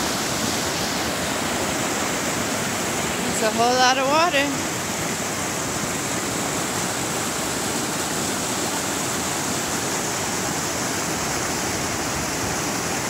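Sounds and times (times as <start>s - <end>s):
creek rushing over rocks: 0.0s - 13.0s.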